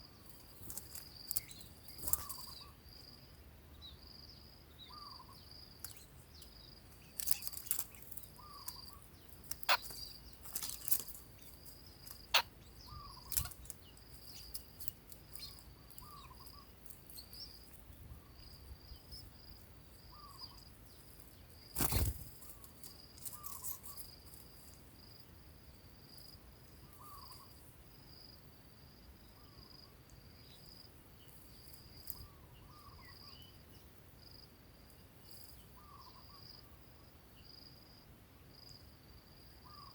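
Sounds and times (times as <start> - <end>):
insects trilling: 0.0 - 28.4, 37.4 - 39.9.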